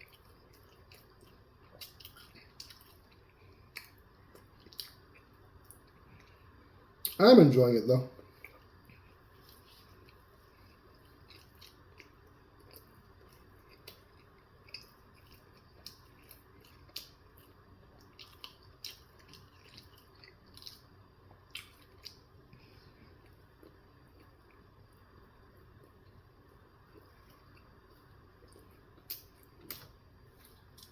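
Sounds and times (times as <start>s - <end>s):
wet chewing mouth sounds: 8.3s - 24.6s.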